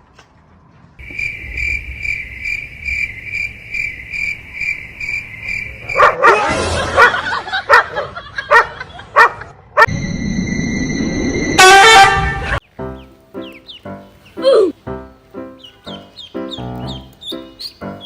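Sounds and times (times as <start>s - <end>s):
dog barking and yipping: 5.9s - 9.9s
high pulsing beeps: 9.9s - 11.6s.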